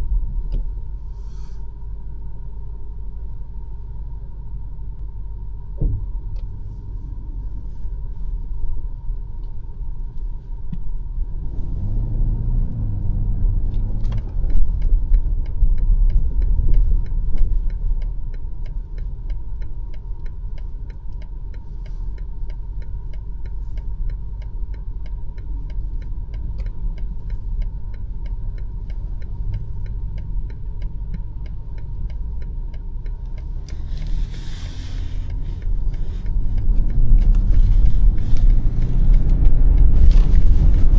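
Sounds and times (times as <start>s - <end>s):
car engine and tyres rumbling: 0.0s - 40.9s
short hiss: 1.2s - 1.7s, 33.7s - 35.3s
light ticking: 12.7s - 40.9s.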